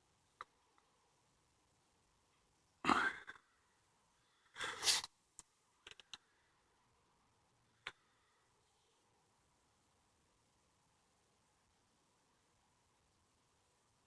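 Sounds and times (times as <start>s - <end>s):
small sharp clicks: 5.0s - 6.3s.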